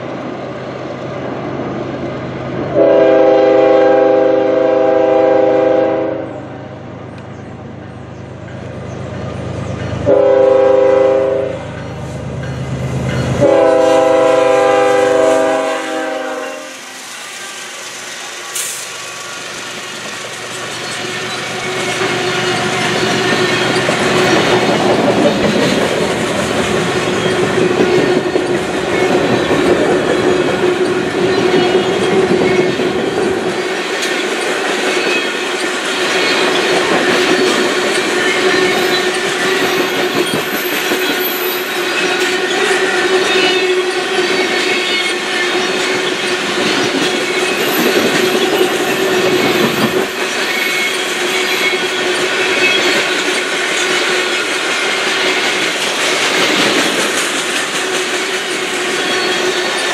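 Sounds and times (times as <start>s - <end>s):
train horn blasts: 2.7s - 6.7s, 10.0s - 11.7s, 13.4s - 17.1s, 41.2s - 45.8s
freight cars rattling on rails: 11.6s - 59.9s.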